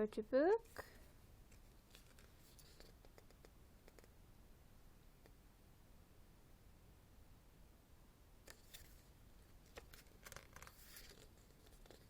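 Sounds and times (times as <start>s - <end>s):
soft clicks of book handling: 0.6s - 4.2s, 8.4s - 12.0s
photo book pages turning: 1.5s - 3.4s, 8.5s - 12.0s.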